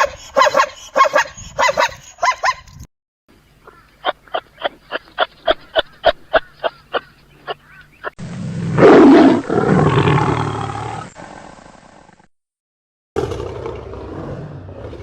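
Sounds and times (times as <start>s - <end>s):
dog yapping barks: 0.0s - 2.7s
big cat roaring: 8.5s - 12.1s, 13.2s - 15.0s.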